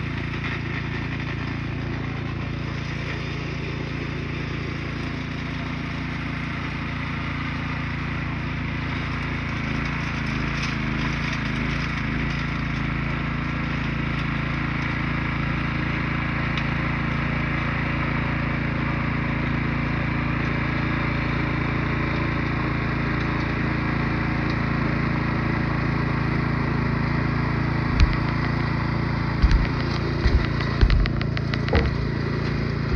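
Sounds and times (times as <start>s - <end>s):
small petrol engine running: 0.0s - 32.9s
sharp knock: 29.4s - 32.1s.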